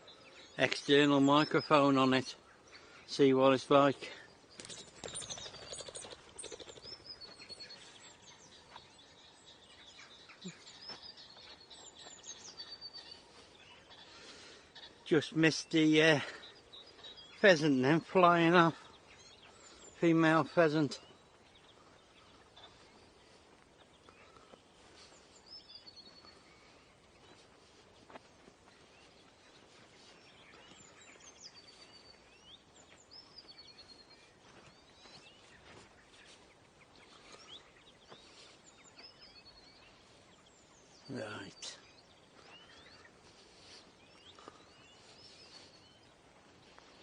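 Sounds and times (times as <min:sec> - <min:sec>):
faint birdsong chirps: 0:00.0 - 0:47.0
faint outdoor ambience: 0:00.0 - 0:47.0.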